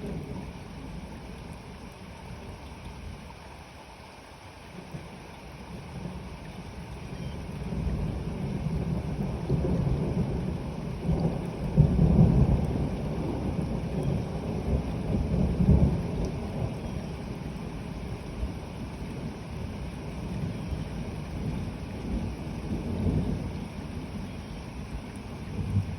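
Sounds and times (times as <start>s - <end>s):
steady rain: 0.0s - 25.9s
thunder rumble: 20.2s - 25.9s.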